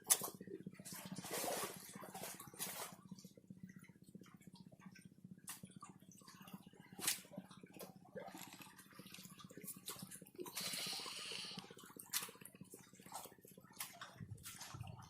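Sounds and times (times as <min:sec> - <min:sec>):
steady low hum: 0:00.0 - 0:15.0
water splashing and dripping: 0:06.4 - 0:15.0.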